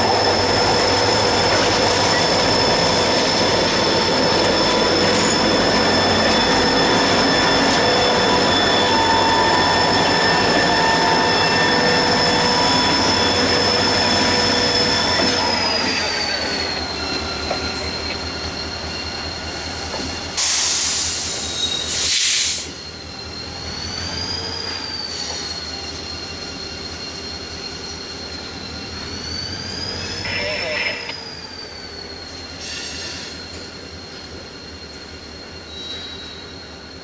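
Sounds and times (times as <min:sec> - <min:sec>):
train wheels squealing on rail: 0:00.0 - 0:37.0
loud hiss bursts: 0:20.4 - 0:22.8.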